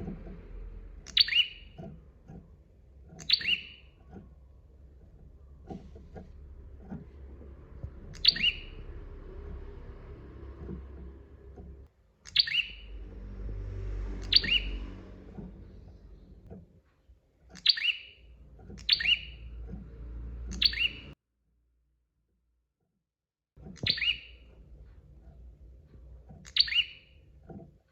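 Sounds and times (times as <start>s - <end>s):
low background rumble: 0.0s - 17.5s, 18.1s - 21.2s
bird chirping calls: 0.8s - 2.4s, 3.1s - 4.3s, 4.9s - 16.5s, 17.5s - 21.2s, 23.8s - 24.5s, 26.4s - 27.2s.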